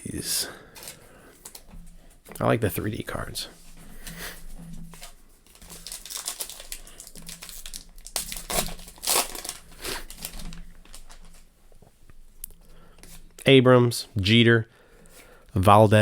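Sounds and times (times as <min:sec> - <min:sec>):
foil wrapper crinkling and tearing: 0:04.8 - 0:11.5.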